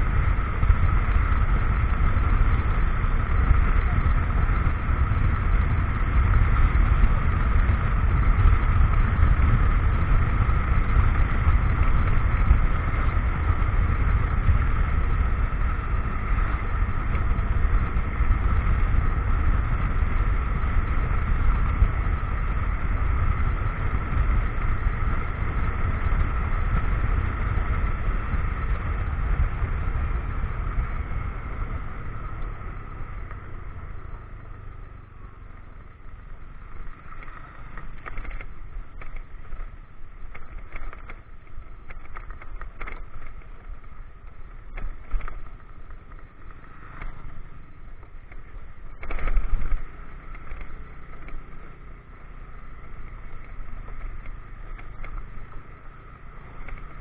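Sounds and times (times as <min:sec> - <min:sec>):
wind on microphone: 0:00.0 - 0:34.6
motorcycle engine rumble: 0:00.0 - 0:57.0.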